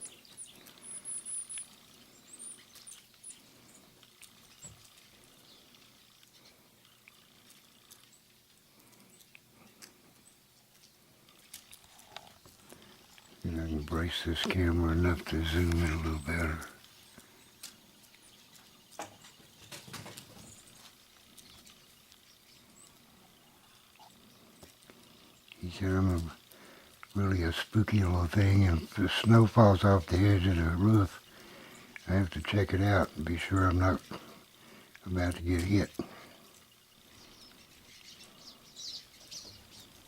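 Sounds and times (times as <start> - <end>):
high bird chirps: 0.0 - 3.4, 37.2 - 40.0.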